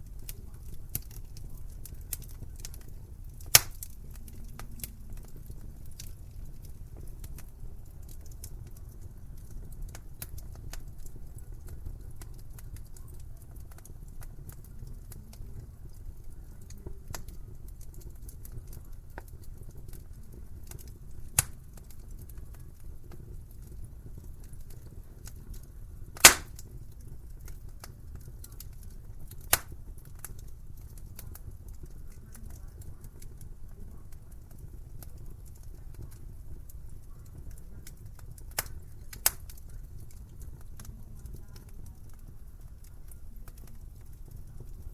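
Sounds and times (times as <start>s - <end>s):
sharp pops of fire: 0.0s - 44.9s
wood fire crackling: 0.0s - 44.9s.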